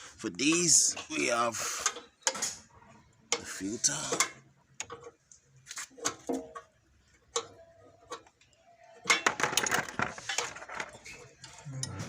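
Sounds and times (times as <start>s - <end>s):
metal parts clinking: 9.0s - 12.0s.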